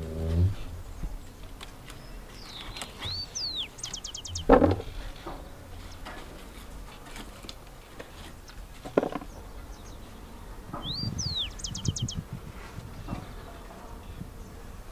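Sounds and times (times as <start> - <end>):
songbird whistling and trilling: 2.4 - 4.5, 10.8 - 12.2
low rustling and handling noise: 4.4 - 9.5.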